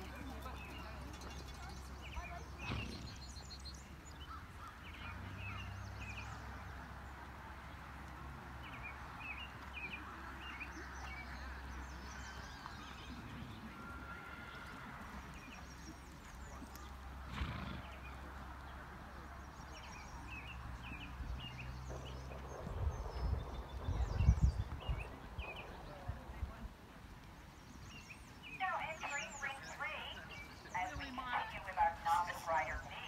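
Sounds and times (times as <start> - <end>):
birds chirping: 27.3 - 33.0.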